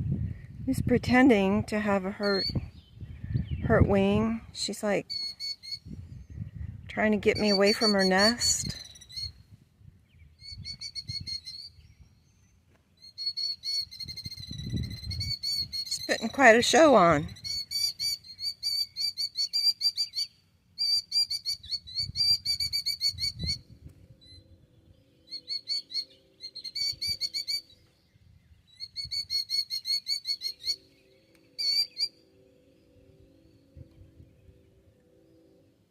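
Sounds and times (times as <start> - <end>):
sandpiper alarm calls: 7.3 - 9.3, 25.3 - 27.7
faint low hum: 30.8 - 35.9.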